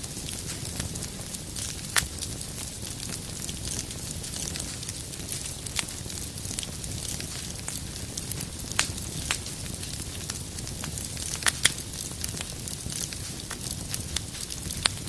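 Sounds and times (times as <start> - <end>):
firewood popping: 0.0 - 15.0
low rumble of flames: 0.0 - 15.0
wood fire crackling: 0.0 - 15.0.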